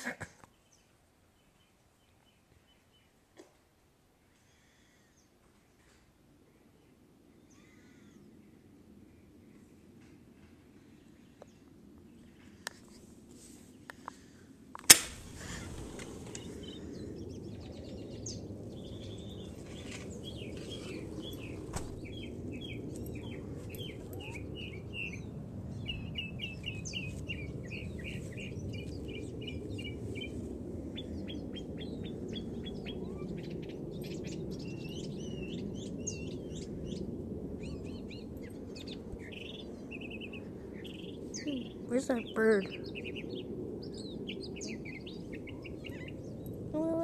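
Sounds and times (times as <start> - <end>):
songbirds chirping: 0.4 - 47.0
low background rumble: 11.0 - 47.0.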